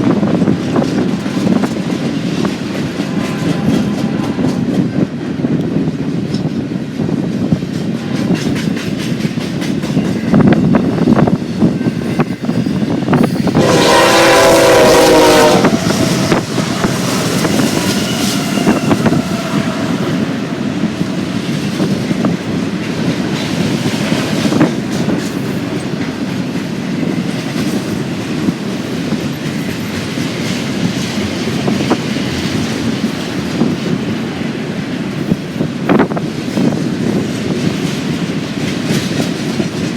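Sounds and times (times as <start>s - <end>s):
train wheels clattering on rails: 0.0s - 39.9s
locomotive horn blast: 3.0s - 4.7s, 13.6s - 21.2s.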